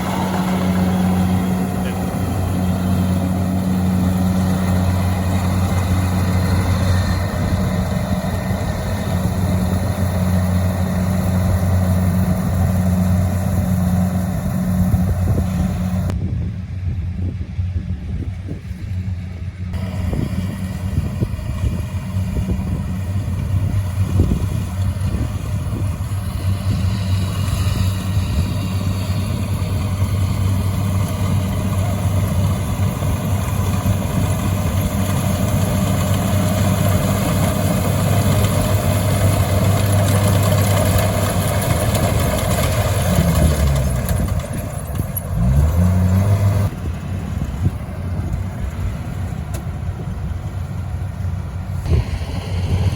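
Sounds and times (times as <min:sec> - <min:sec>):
motor engine running: 0:00.0 - 0:16.2, 0:19.8 - 0:52.9.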